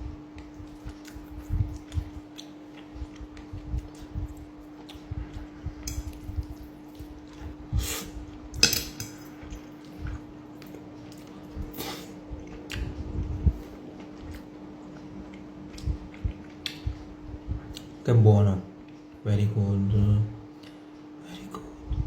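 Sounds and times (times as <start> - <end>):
cutlery clinking on plate: 8.6 - 9.3.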